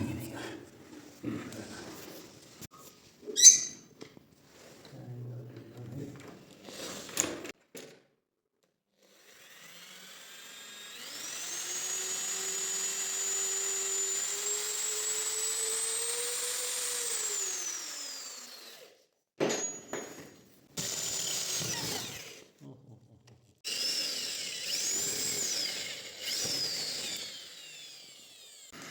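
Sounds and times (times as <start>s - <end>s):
electric motor whining: 23.7s - 28.9s.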